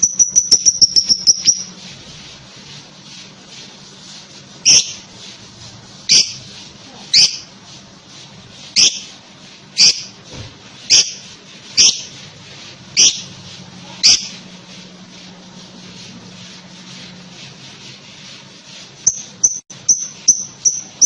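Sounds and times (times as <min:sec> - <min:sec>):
lovebird high-pitched calls: 0:00.0 - 0:01.8, 0:04.6 - 0:05.1, 0:06.1 - 0:06.4, 0:07.1 - 0:07.5, 0:08.7 - 0:09.1, 0:09.8 - 0:10.2, 0:10.9 - 0:11.2, 0:11.8 - 0:12.1, 0:13.0 - 0:13.3, 0:14.0 - 0:14.4, 0:19.0 - 0:21.0.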